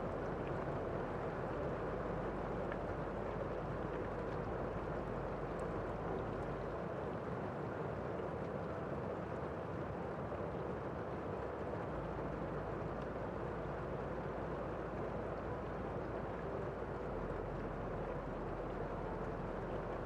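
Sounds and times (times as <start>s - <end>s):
faint drip ticks: 0.0s - 6.8s
muffled rain: 0.0s - 20.0s.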